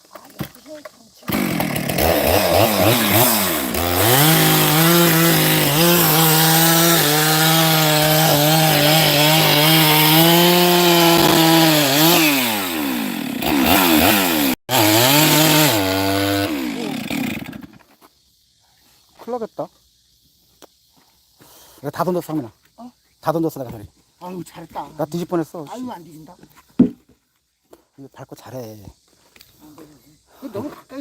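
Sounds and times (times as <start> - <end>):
chainsaw revving: 1.3 - 17.8.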